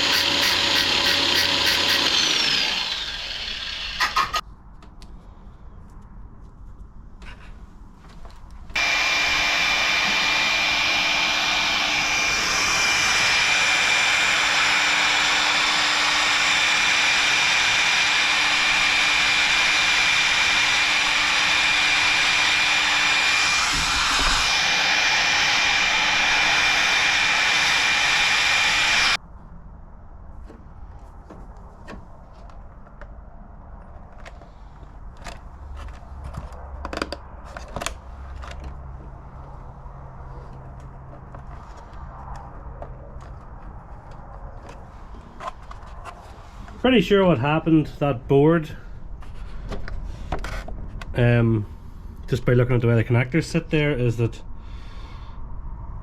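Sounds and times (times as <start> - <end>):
electric blower whining: 0.0 - 4.4, 8.8 - 29.2.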